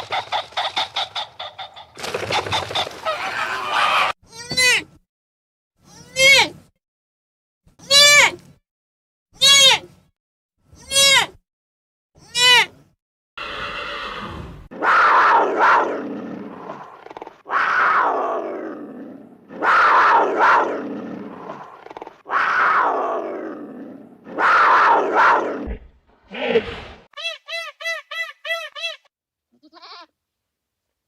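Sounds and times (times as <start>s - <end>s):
animal bleat-like call: 3.0s - 4.2s, 29.5s - 30.1s
animal roaring calls: 3.0s - 4.2s, 13.4s - 26.7s.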